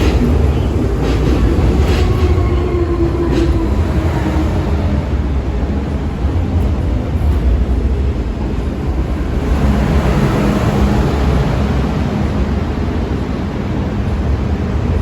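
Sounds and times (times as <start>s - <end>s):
train hum: 0.0s - 15.0s
train low rumble: 0.0s - 15.0s.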